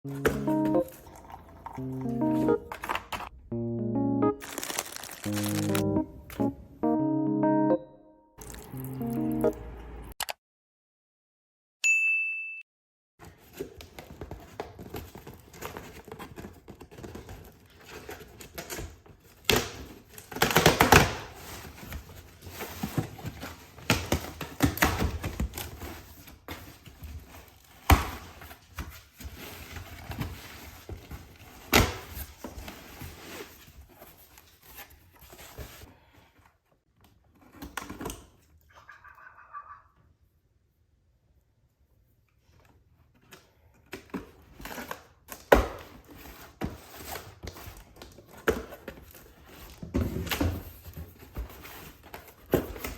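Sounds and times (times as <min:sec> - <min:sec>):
rustling: 0:04.4 - 0:05.8.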